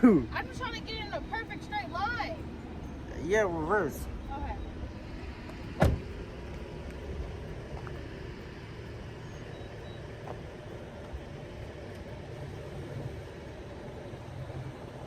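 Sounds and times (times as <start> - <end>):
car engine low rumble: 0.0 - 15.0
car cabin noise: 3.6 - 8.3.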